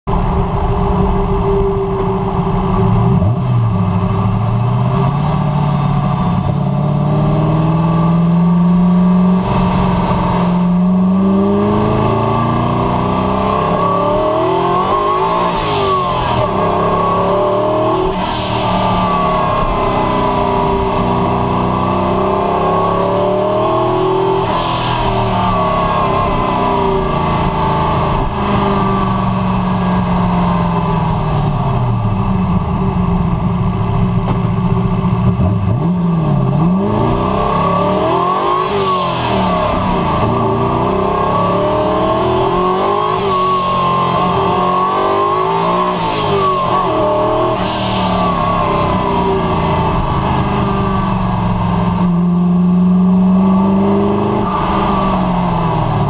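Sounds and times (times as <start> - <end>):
car engine accelerating through gears: 0.0 - 56.0.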